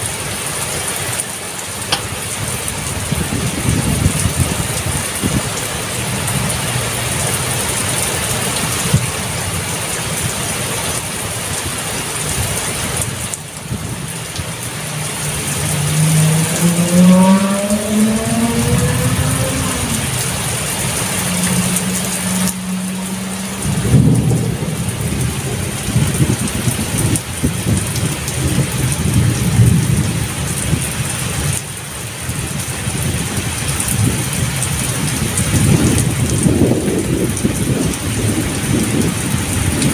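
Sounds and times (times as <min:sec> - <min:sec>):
heavy rain falling: 0:00.0 - 0:39.9
vehicle engine accelerating: 0:01.8 - 0:31.6, 0:32.4 - 0:39.9
low rumble: 0:13.5 - 0:30.4.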